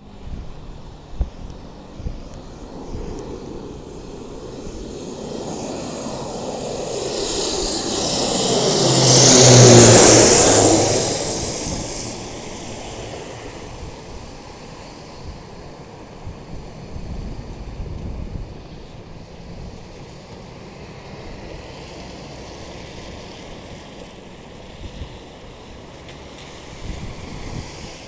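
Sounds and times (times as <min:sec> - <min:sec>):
turboprop plane flying past: 0:00.0 - 0:16.1.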